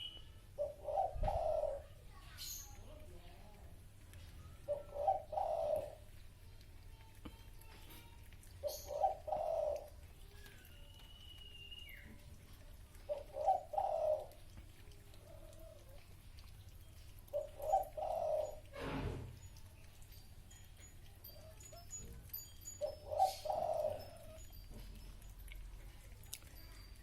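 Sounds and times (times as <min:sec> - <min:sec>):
dove cooing: 0:00.6 - 0:02.0, 0:04.6 - 0:06.1, 0:08.6 - 0:10.0, 0:13.0 - 0:14.5, 0:17.3 - 0:19.1, 0:22.7 - 0:25.0.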